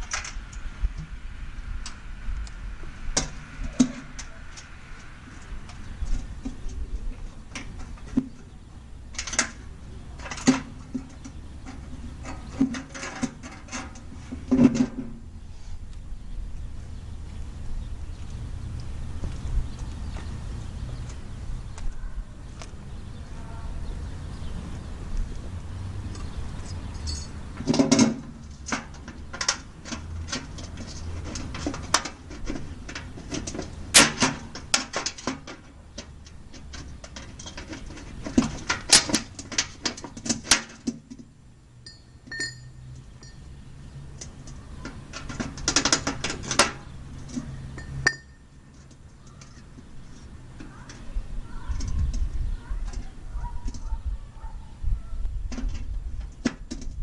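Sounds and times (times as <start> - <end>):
metallic clicks and clanks: 9.1 - 9.6, 10.2 - 15.1, 26.9 - 43.5, 44.1 - 49.8.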